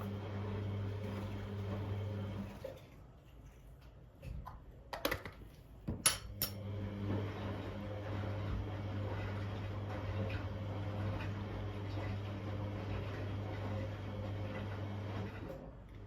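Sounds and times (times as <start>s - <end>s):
kitchenware clinking: 5.9s - 6.6s.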